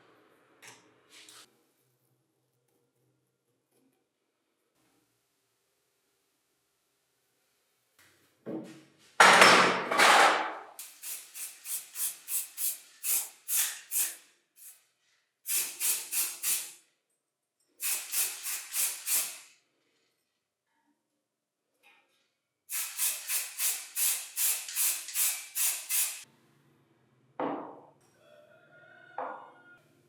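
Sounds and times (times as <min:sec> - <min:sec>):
paint spray hissing: 0:10.8 - 0:14.8, 0:15.5 - 0:16.8, 0:17.8 - 0:19.5, 0:22.7 - 0:26.3.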